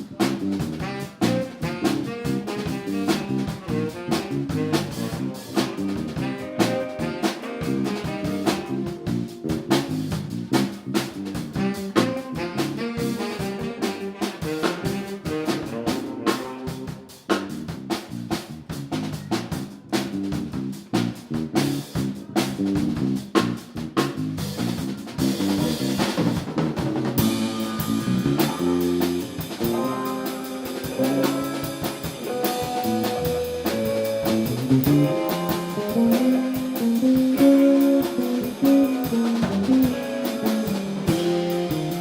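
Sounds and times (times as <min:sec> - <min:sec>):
drum kit and bass groove: 0:00.0 - 0:42.0
guitar melodic lines: 0:00.8 - 0:09.8, 0:27.2 - 0:42.0.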